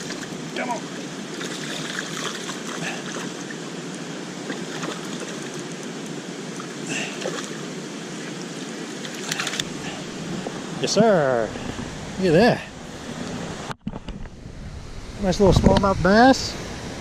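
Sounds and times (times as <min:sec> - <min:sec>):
water splash: 0:00.0 - 0:00.7, 0:01.3 - 0:03.6, 0:04.4 - 0:05.8
waterfall rushing: 0:02.8 - 0:13.6.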